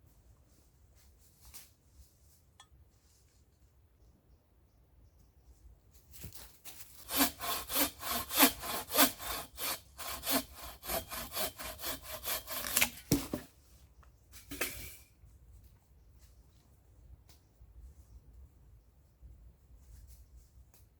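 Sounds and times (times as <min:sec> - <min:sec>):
hand saw cutting wood: 0:06.8 - 0:13.5.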